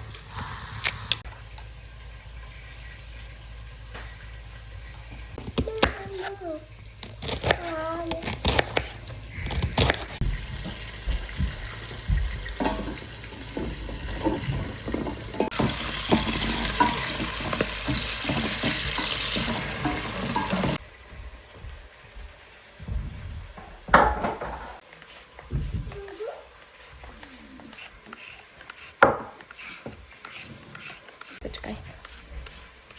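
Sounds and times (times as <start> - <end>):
tap water running into sink: 10.2 - 20.8
knocks and clatter: 22.8 - 24.8.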